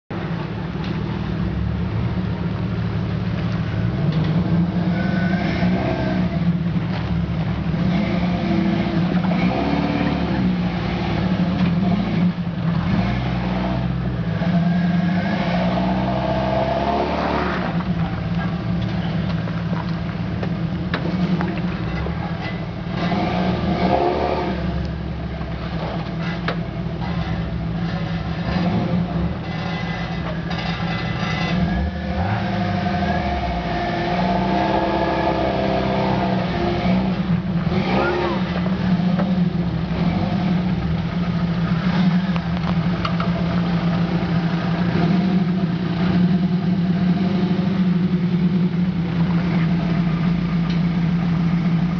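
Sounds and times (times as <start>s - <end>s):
car engine running: 0.1s - 51.9s.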